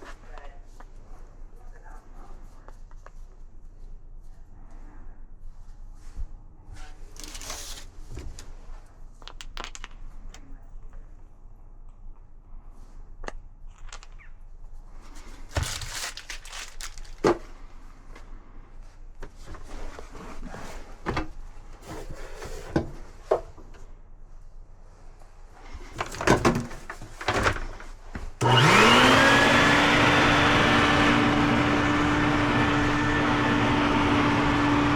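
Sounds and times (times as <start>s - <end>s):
tools being handled: 7.1s - 8.3s, 15.2s - 17.4s
electric motor whining: 28.4s - 34.9s.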